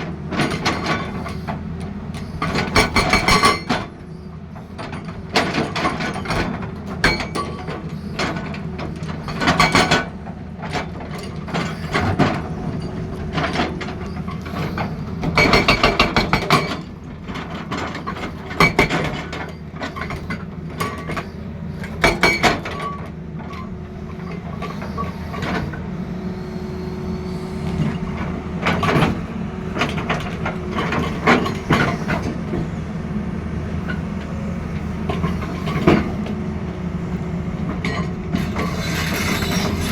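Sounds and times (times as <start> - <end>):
diesel engine running: 0.0 - 39.9
hydraulic breaker hammering: 15.3 - 16.9.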